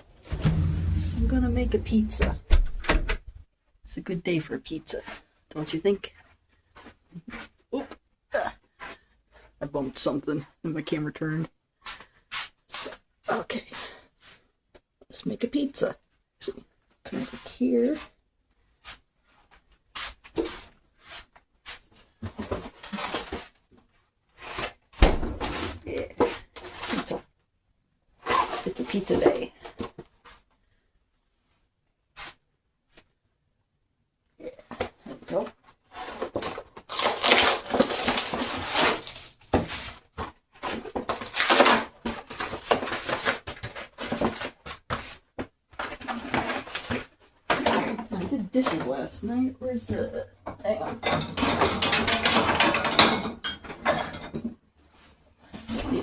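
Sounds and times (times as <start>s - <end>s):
rustling and crinkling: 0.0s - 3.8s, 16.0s - 27.4s, 34.5s - 50.8s
rustling and knocking handling noises: 37.7s - 49.1s.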